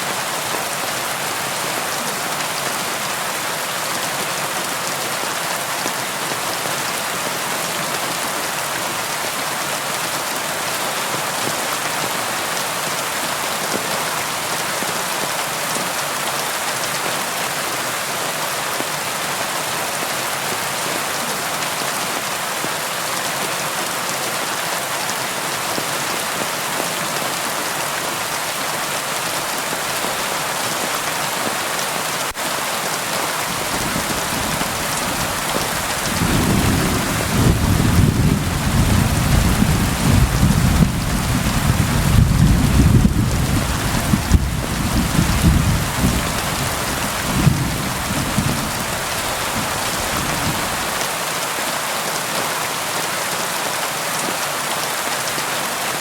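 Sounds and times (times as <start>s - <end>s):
steady rain patter: 0.0s - 56.0s.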